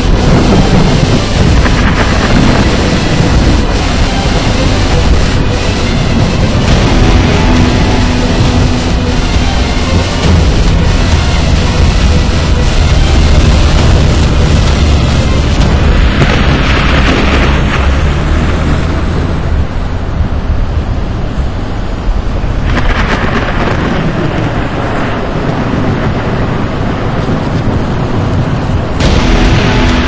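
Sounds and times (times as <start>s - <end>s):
steady rushing noise: 0.0s - 30.0s
thunder rumbling: 0.0s - 30.0s.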